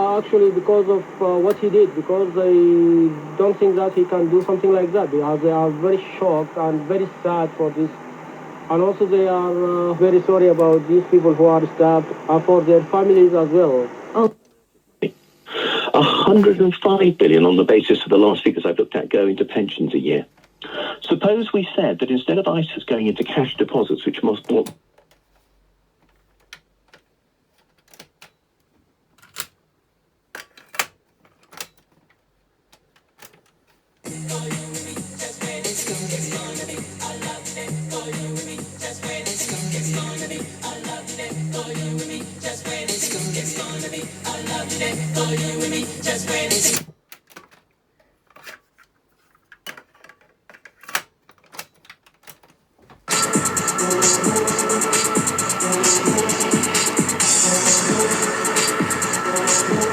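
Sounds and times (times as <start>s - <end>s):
loud electronic music: 0.0s - 13.7s, 34.1s - 46.8s, 53.1s - 59.9s
boombox music: 0.0s - 14.2s, 34.0s - 46.9s, 53.1s - 59.9s
control clicks: 0.0s - 14.6s.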